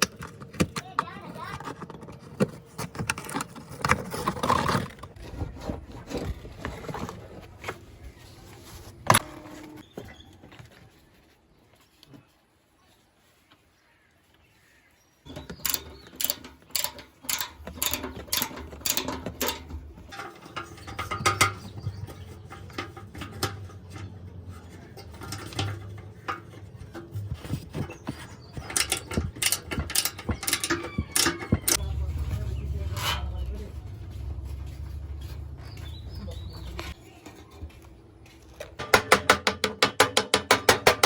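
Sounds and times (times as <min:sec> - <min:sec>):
sharp clicks and knocks: 0:15.3 - 0:37.0, 0:38.6 - 0:41.0.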